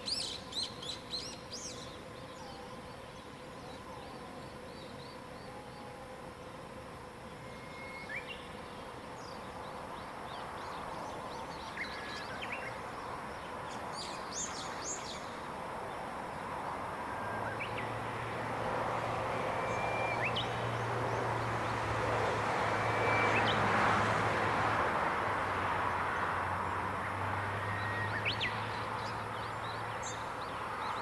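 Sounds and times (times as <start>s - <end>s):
steady outdoor hiss: 0.0s - 31.0s
wild birds chirping: 0.0s - 31.0s.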